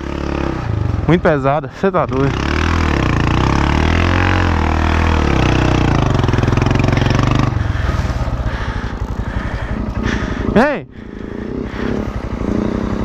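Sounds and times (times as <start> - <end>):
motorcycle engine revving and idling: 0.0 - 13.0.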